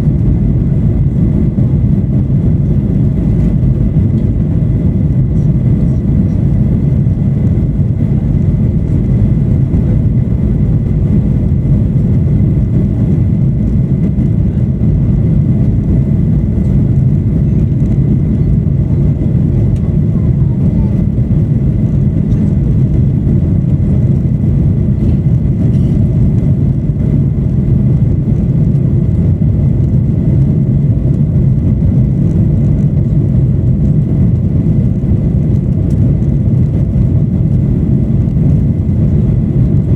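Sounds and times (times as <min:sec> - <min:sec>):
faint thin whine: 0:00.0 - 0:27.1
aircraft engine rumble in cabin: 0:00.0 - 0:39.9.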